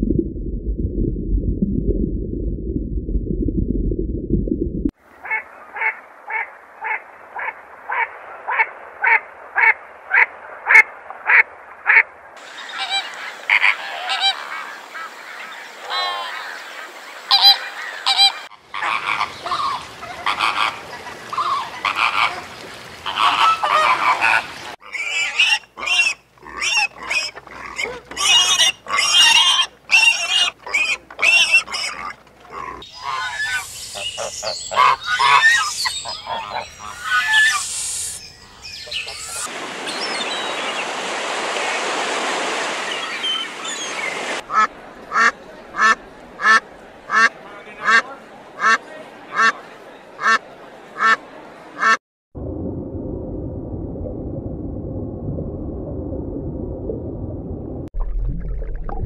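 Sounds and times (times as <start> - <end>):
low rumble: 0.0 - 4.9, 52.4 - 59.0
geese honking: 17.3 - 38.1.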